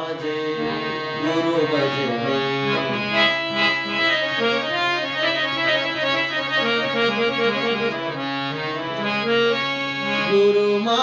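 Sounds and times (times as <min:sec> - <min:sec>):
harmonium melody: 0:00.0 - 0:11.0.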